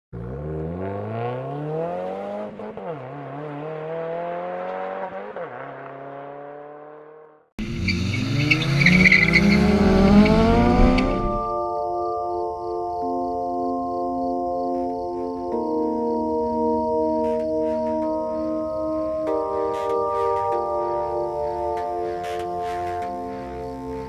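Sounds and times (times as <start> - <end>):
engine revving hard: 0.2 - 11.5
car engine accelerating through shifts: 0.2 - 11.6
tire squeal: 7.6 - 11.5.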